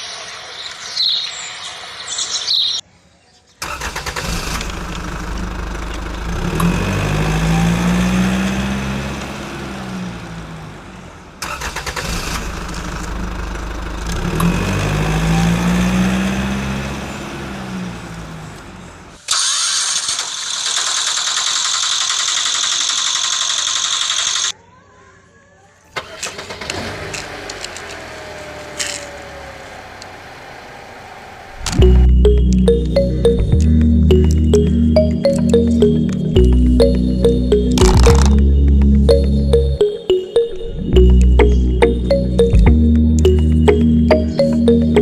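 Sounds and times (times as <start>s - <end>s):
vehicle engine revving: 3.8s - 19.1s.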